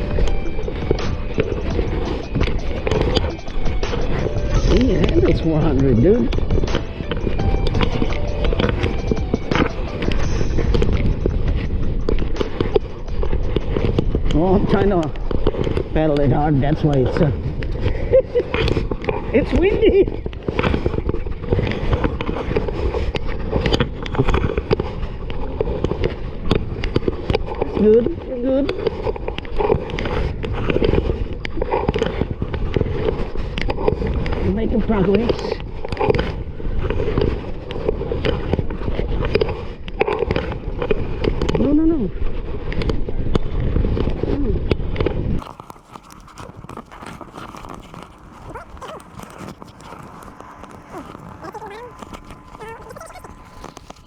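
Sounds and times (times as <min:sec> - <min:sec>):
wind buffeting microphone: 0:00.0 - 0:54.0
faint voices: 0:46.0 - 0:54.0.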